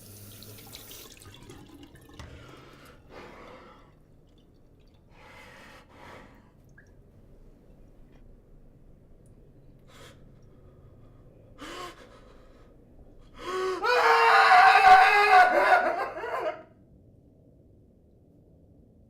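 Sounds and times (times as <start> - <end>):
person gasping: 9.9 - 13.9.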